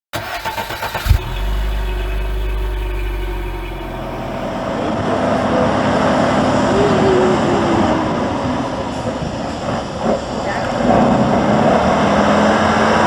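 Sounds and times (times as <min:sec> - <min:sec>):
truck diesel engine running: 0:00.2 - 0:06.0.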